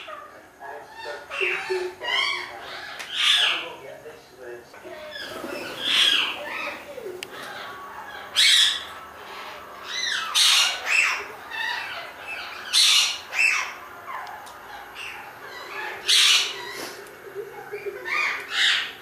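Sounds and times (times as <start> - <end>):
bird calling: 4.9 - 19.0.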